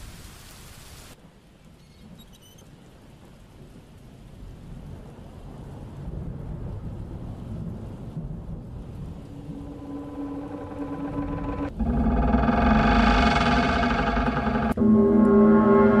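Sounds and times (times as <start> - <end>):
rain falling: 0.0 - 11.8
thunder rumbling: 2.8 - 16.0.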